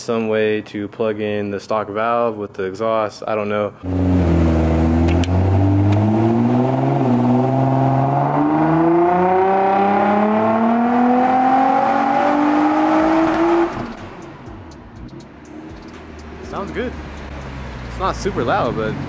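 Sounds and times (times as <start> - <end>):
car engine revving at full throttle: 3.8 - 14.7.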